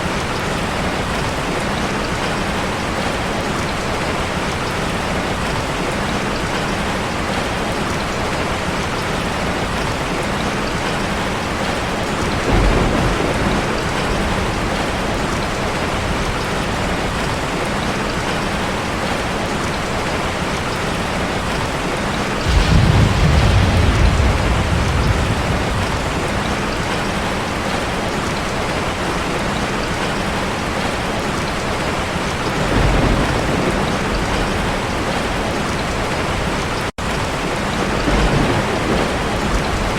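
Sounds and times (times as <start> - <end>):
deep rumbles: 22.4 - 27.0.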